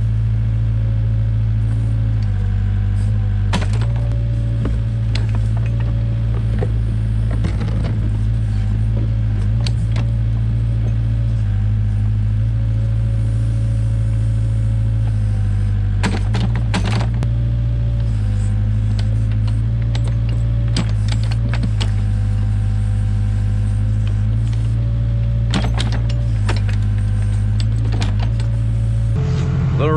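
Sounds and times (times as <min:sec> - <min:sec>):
diesel engine running: 0:00.0 - 0:29.9
digging knocks and clanks: 0:03.4 - 0:11.3, 0:16.0 - 0:17.3, 0:18.0 - 0:22.5, 0:25.4 - 0:28.9.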